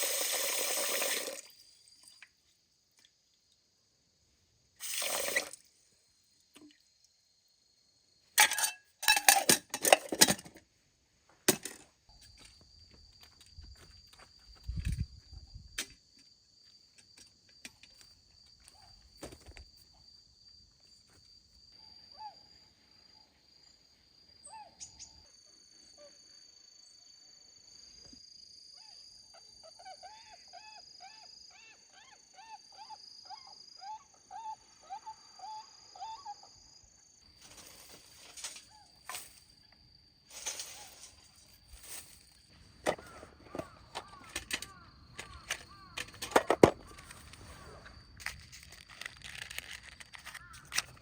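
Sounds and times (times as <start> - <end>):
insect chirring: 0.0 - 8.4, 12.1 - 51.0.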